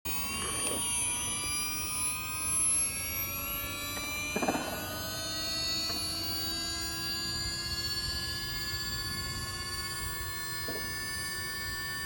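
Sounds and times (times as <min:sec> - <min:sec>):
electric motor whining: 0:00.1 - 0:12.0.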